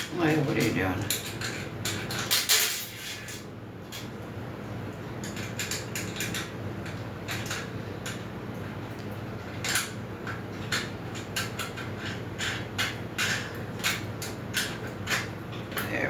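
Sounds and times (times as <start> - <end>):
metal clinks and scrapes: 0.4 - 3.4.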